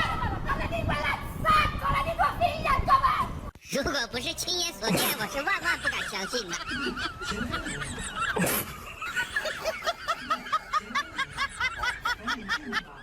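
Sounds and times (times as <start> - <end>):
person laughing: 4.9 - 13.0.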